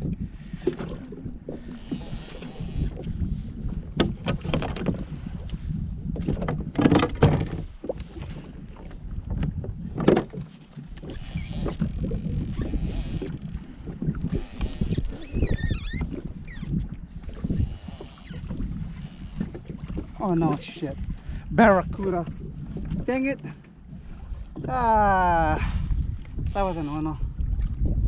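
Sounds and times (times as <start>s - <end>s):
wind rumbling on microphone: 0.0s - 28.0s
knocks against kayak hull: 6.2s - 7.7s, 9.4s - 10.5s.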